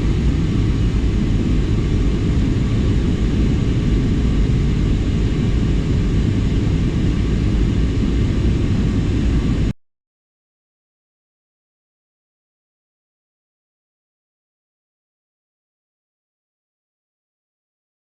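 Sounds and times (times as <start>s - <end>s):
airliner cabin engine rumble: 0.0s - 9.8s.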